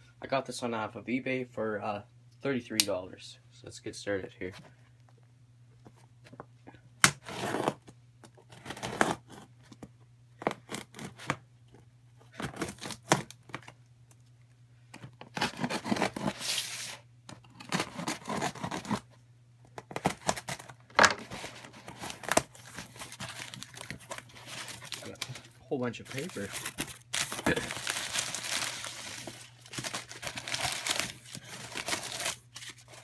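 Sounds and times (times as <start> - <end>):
cardboard box tearing: 7.2 - 7.8, 8.5 - 9.5, 12.4 - 13.4, 15.3 - 17.0, 17.6 - 19.1, 19.9 - 25.3, 26.1 - 33.0
packing paper rustling: 19.9 - 33.0.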